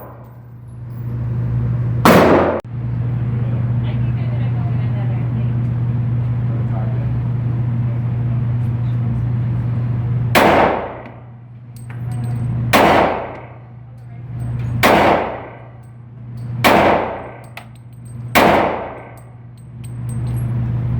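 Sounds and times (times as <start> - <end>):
steady low hum: 0.0 - 20.9
handgun shots: 2.1 - 2.6, 10.4 - 11.2, 12.7 - 13.6, 14.8 - 15.8, 16.6 - 19.3.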